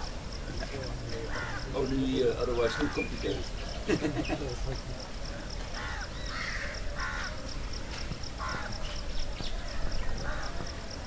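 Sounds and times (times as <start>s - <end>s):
harsh bird calls: 0.6s - 4.6s, 5.3s - 7.5s.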